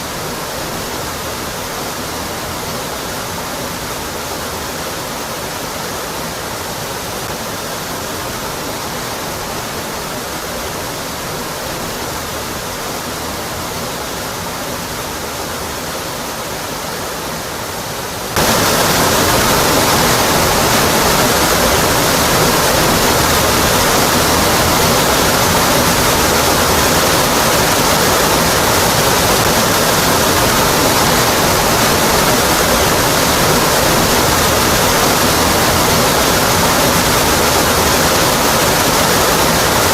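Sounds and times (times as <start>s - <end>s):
waterfall onto rock: 18.3s - 39.9s.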